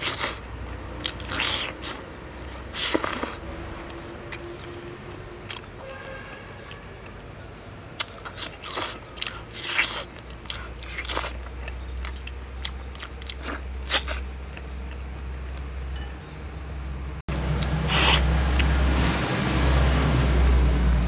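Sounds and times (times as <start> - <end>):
person chewing and biting: 0.0 - 6.0, 8.0 - 16.1, 17.5 - 19.7.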